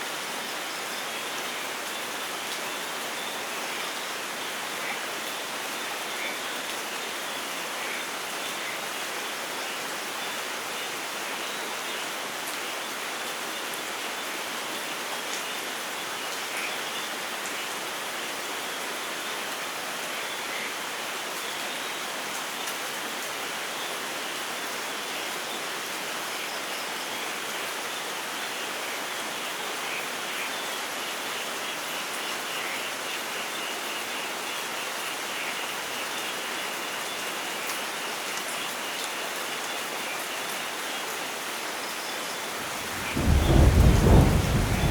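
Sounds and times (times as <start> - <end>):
light rain falling: 0.0 - 44.9.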